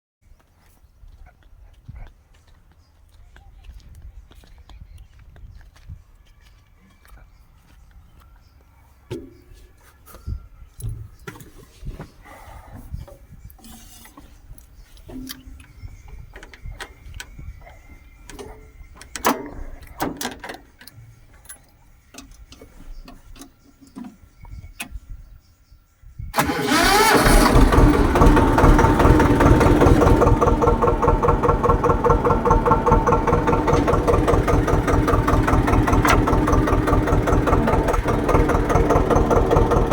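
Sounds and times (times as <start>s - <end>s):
tractor diesel engine starting: 26.3s - 39.9s.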